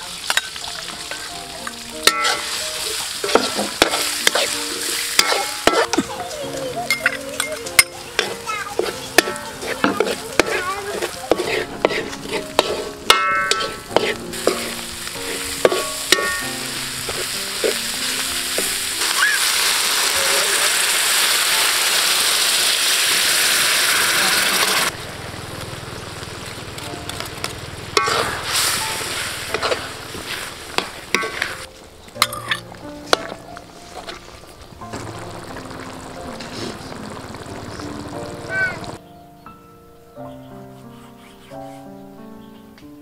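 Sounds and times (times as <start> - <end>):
loud sizzle of liquid: 0.0 - 32.3, 33.3 - 39.0
spice paste frying: 0.0 - 39.0
metal spoon scraping a pan: 2.0 - 6.1, 7.0 - 18.8, 28.0 - 33.4
quiet bubbling: 34.2 - 39.0.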